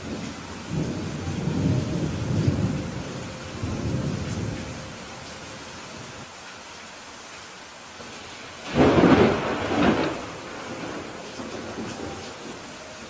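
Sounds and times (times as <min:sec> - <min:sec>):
thunder rumble: 0:00.0 - 0:05.1, 0:08.6 - 0:13.0
steady rain: 0:00.0 - 0:13.0.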